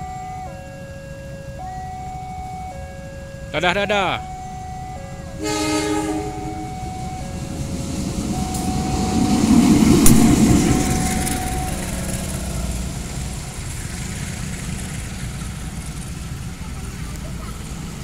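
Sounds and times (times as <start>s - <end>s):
diesel train engine passing: 3.5s - 18.0s
train rumble: 4.4s - 18.0s.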